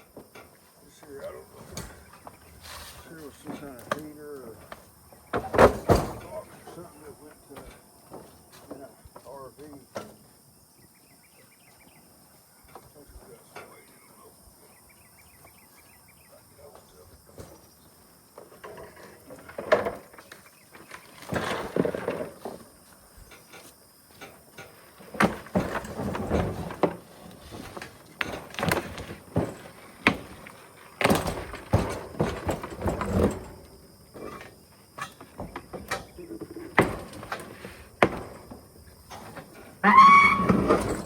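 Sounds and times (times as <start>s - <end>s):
metal scraping and rattling: 0.4s - 8.7s, 18.4s - 41.0s
scrap metal clanking: 0.4s - 8.8s, 20.9s - 41.0s.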